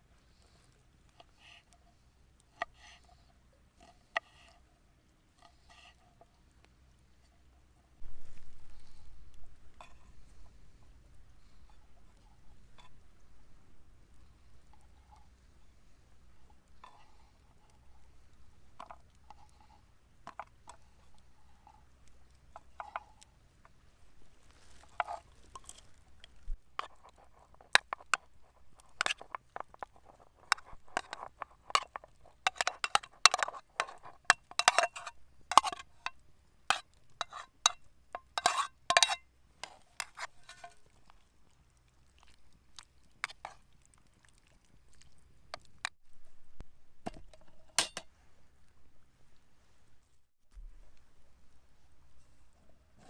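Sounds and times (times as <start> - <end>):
cooking utensils clinking: 26.8 - 35.8, 37.2 - 40.8, 47.1 - 48.1.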